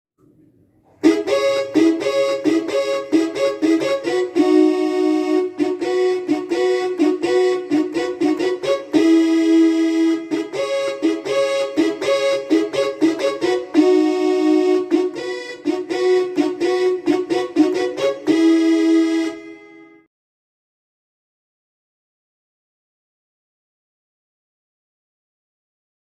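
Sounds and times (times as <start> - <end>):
synthesizer notes: 1.0 - 20.1.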